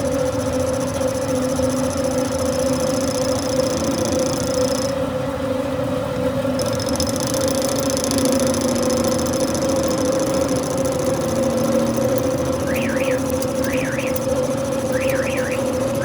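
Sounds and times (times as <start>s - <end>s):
lathe machine hum: 6.6s - 16.0s.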